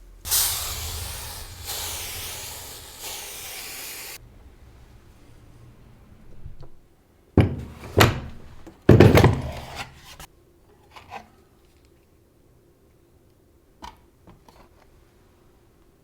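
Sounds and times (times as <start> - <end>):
heavy knocks: 4.2 - 9.8.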